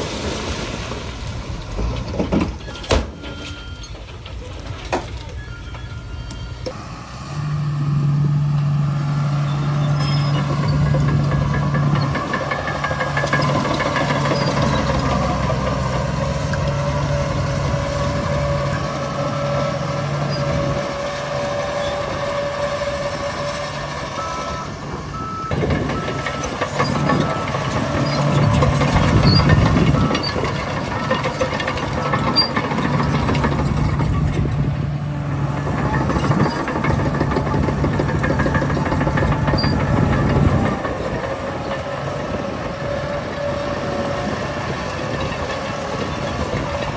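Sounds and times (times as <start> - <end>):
heavy diesel machinery running: 0.0 - 46.9
reversing alarm beeping: 2.6 - 4.4, 5.0 - 6.8, 9.2 - 15.5, 18.1 - 34.1.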